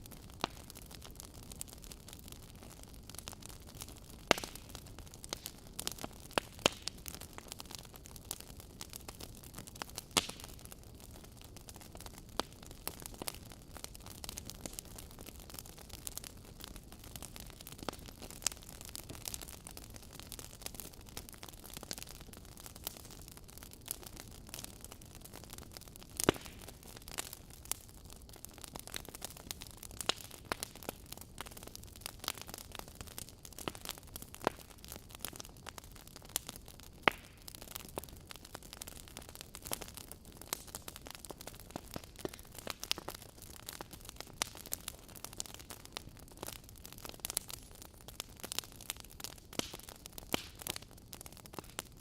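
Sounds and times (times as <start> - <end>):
wood fire crackling and popping: 0.0 - 52.0.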